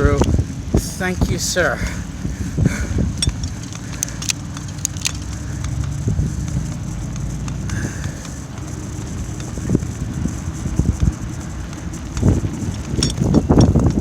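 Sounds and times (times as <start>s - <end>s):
bicycle tyres rumbling: 0.0s - 14.0s
wind: 0.0s - 14.0s
sharp clicks: 2.6s - 14.0s.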